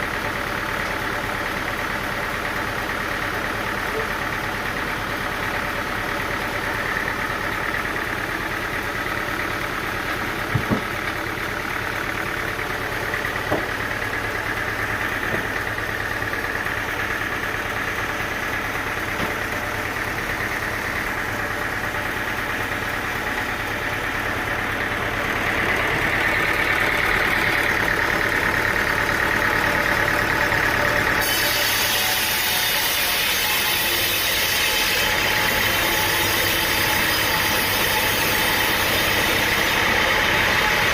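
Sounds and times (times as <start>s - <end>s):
engine running: 0.0s - 40.9s
sharp knocks: 10.5s - 10.9s, 13.5s - 13.8s, 19.2s - 19.4s.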